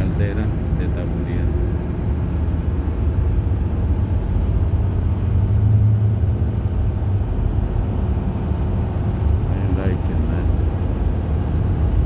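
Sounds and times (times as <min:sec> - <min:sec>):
bus engine and road drone: 0:00.0 - 0:12.0.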